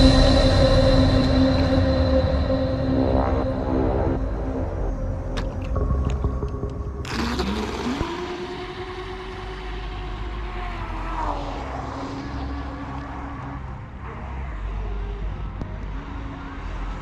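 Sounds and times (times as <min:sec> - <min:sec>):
electric motor whining: 0:07.0 - 0:10.5.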